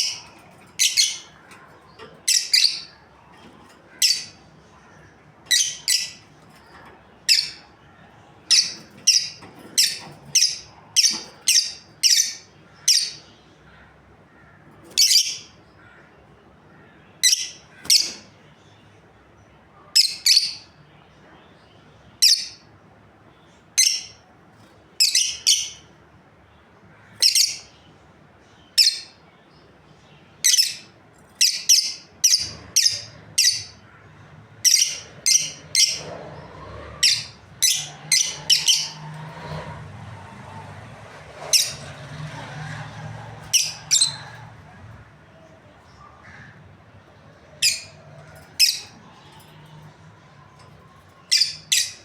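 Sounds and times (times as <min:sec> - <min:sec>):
lovebirds chirping: 0:00.0 - 0:13.4, 0:27.2 - 0:39.5, 0:41.4 - 0:52.0.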